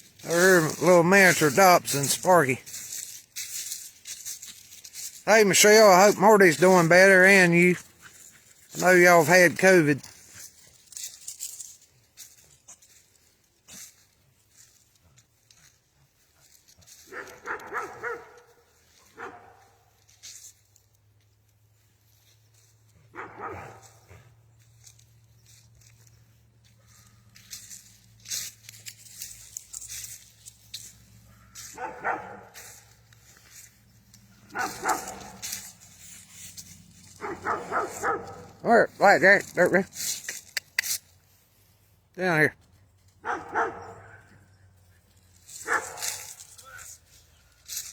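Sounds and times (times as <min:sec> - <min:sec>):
dog barking: 0:17.1 - 0:19.8, 0:23.1 - 0:24.2, 0:31.6 - 0:32.6, 0:34.5 - 0:35.6, 0:37.2 - 0:38.6, 0:43.2 - 0:44.3, 0:45.6 - 0:46.3.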